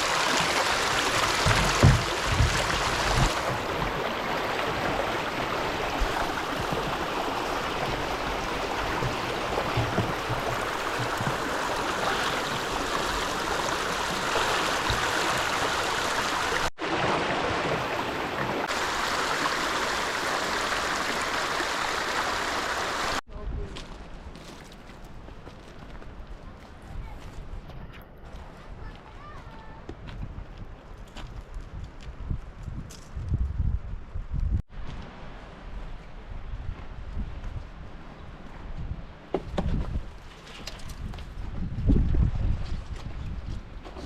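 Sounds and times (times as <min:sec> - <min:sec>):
stream rushing: 0:00.0 - 0:23.2.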